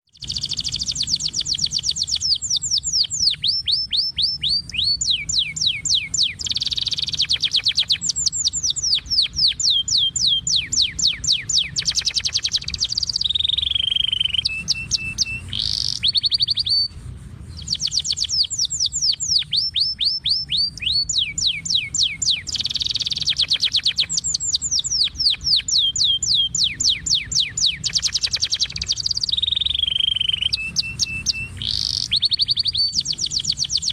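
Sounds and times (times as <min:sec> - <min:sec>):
songbird trilling: 0:00.1 - 0:33.9.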